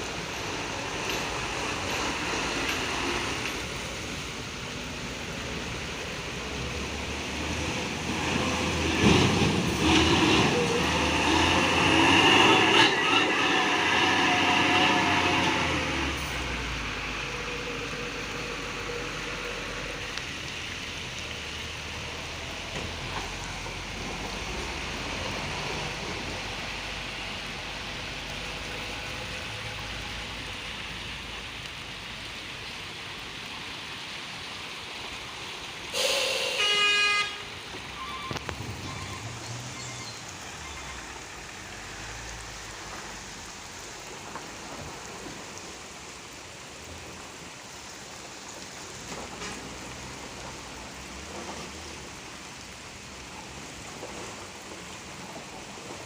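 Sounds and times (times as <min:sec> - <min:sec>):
steady hiss: 0:00.0 - 0:51.2
vehicle noise: 0:00.0 - 0:56.0
vehicle horn: 0:11.4 - 0:16.2, 0:36.0 - 0:39.2.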